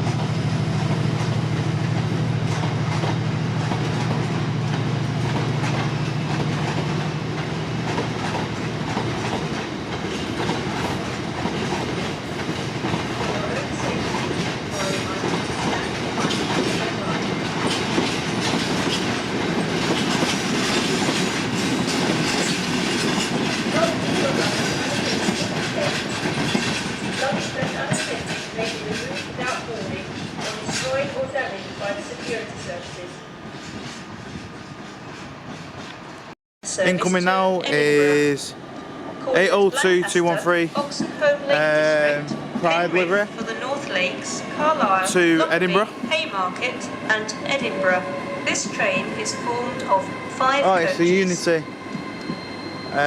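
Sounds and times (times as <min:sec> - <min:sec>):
wheels clicking over rail joints: 0:00.0 - 0:32.4
diesel locomotive engine: 0:00.0 - 0:53.0
wheel squeals: 0:49.2 - 0:53.0.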